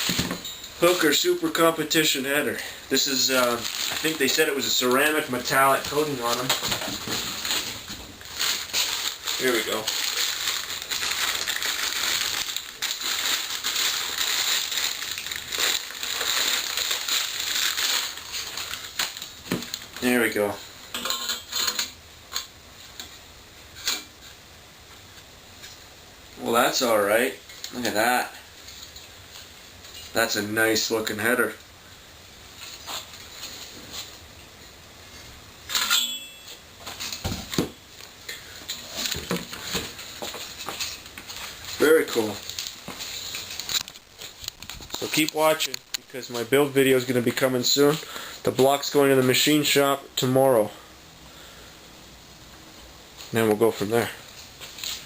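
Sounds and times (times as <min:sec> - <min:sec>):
packaging rustling and crinkling: 0:00.0 - 0:20.4, 0:36.8 - 0:49.4, 0:53.2 - 0:55.0
metallic clatter and ring: 0:35.7 - 0:36.6.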